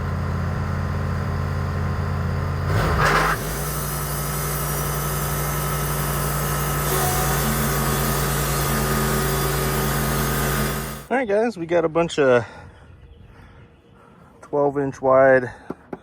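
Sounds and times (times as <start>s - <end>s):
sawmill engine running: 0.0s - 11.1s.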